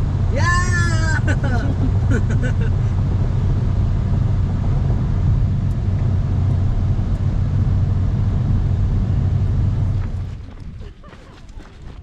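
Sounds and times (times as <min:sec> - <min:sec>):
car engine drone: 0:00.0 - 0:12.0
road noise inside car: 0:00.0 - 0:12.0.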